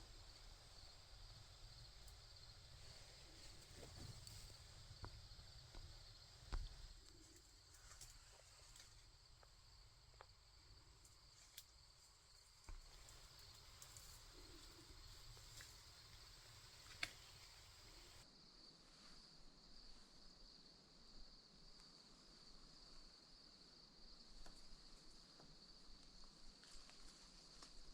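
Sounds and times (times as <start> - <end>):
high-pitched insect chorus: 0.0 - 18.2
soft ticks and rustles: 1.7 - 18.2, 24.4 - 27.9.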